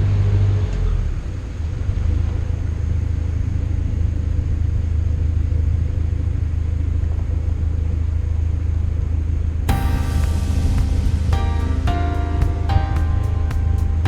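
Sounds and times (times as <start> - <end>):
low engine rumble: 9.7 - 14.0.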